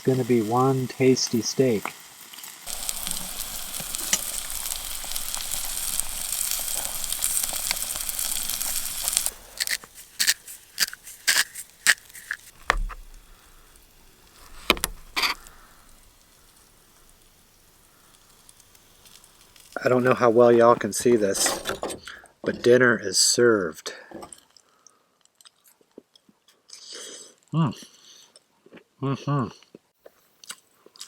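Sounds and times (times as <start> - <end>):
steak sizzling on a grill: 0.0 - 21.4
sharp clicks and knocks: 9.7 - 13.2, 14.5 - 15.4
dull thump: 12.6 - 13.2.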